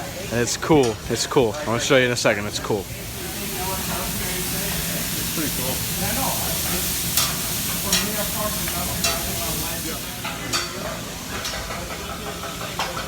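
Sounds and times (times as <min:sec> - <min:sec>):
food sizzling on grill: 0:00.0 - 0:11.6
metal utensils clacking: 0:07.1 - 0:10.8.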